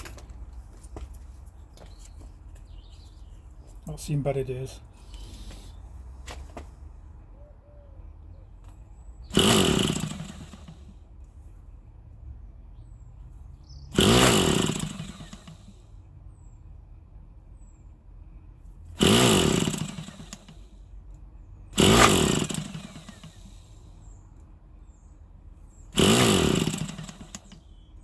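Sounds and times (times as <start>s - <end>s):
electric starter spinning engine: 9.2s - 11.2s, 13.3s - 16.1s, 18.9s - 24.5s, 25.8s - 28.0s.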